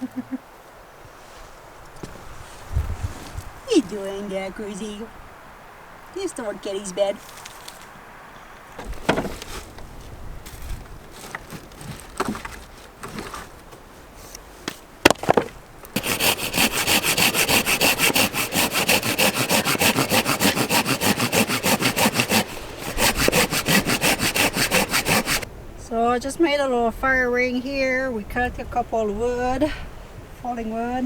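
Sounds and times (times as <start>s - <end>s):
saw cutting wood: 16.0s - 25.5s.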